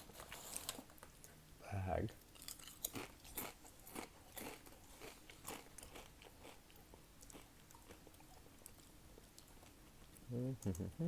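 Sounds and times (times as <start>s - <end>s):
chips being chewed: 2.3s - 9.8s.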